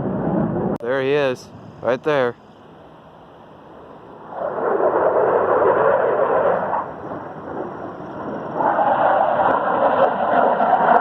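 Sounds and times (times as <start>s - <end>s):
jet aircraft rushing: 3.5s - 11.0s.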